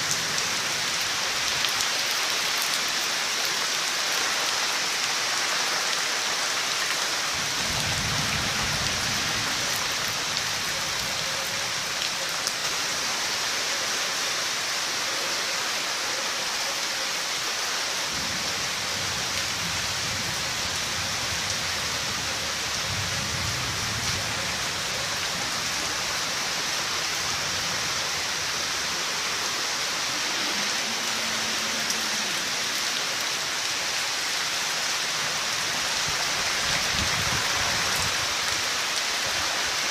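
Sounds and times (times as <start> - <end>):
heavy rain hissing: 0.0 - 39.9
low thunder rumbles: 7.4 - 10.9.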